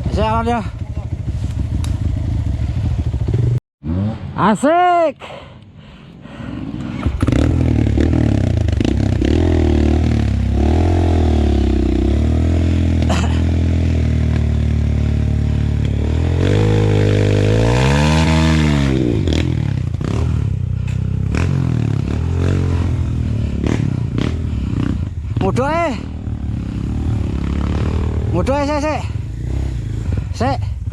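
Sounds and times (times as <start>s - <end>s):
dirt bike engine revving: 6.6s - 30.9s.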